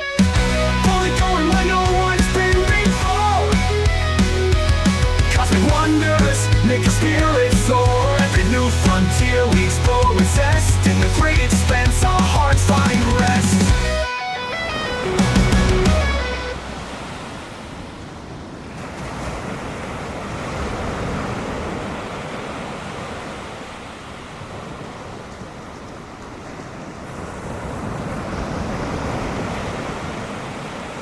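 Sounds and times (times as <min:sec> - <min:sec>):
waves breaking: 0:00.0 - 0:31.0.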